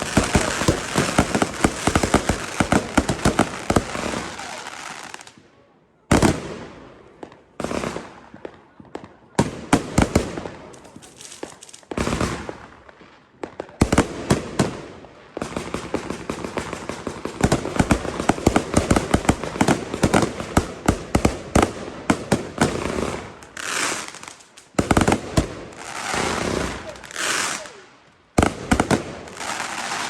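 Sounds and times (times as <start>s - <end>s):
fireworks hiss: 0.0s - 5.3s, 22.6s - 27.9s, 28.5s - 30.0s
fireworks bangs and crackles: 0.0s - 30.0s.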